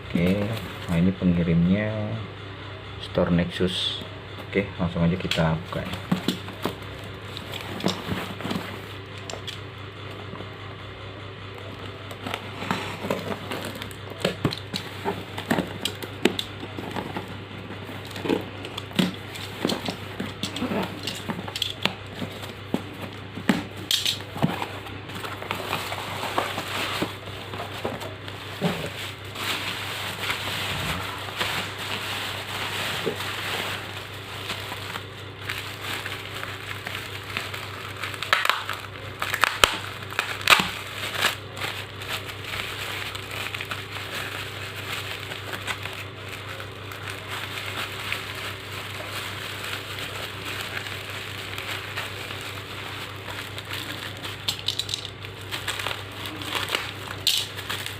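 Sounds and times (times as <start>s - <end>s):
plastic packaging crinkling: 5.1s - 9.7s, 11.6s - 57.9s
plastic ripping: 11.6s - 57.9s.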